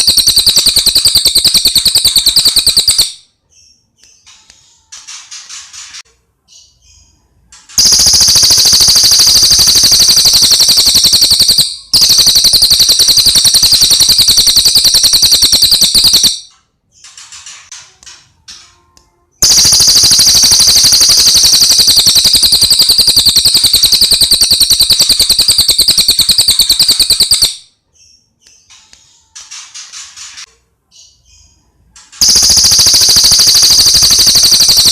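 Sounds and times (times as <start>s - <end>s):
songbird high-pitched rapid trill: 0.0s - 3.3s, 7.8s - 16.5s, 19.4s - 27.7s, 32.2s - 34.9s.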